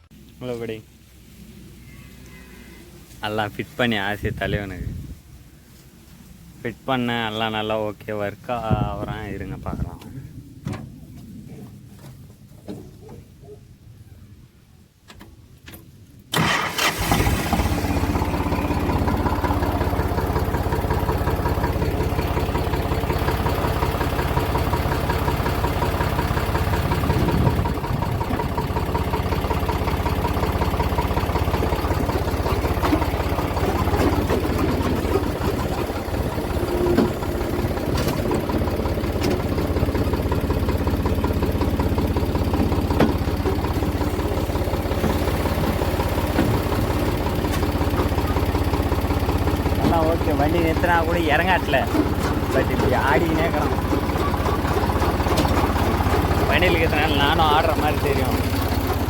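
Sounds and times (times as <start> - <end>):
tractor diesel engine idling: 16.3 - 59.0.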